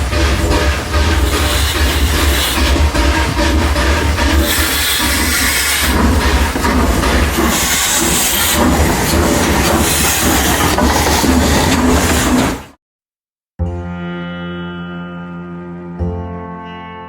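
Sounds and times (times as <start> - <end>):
train rumble and rail clatter: 0.0 - 12.8
music: 13.6 - 17.0.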